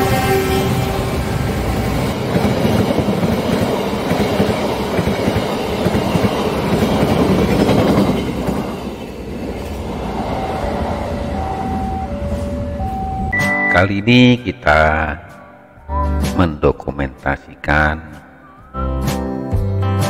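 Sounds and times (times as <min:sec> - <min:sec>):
train wheels clattering on rails: 0:01.9 - 0:13.3.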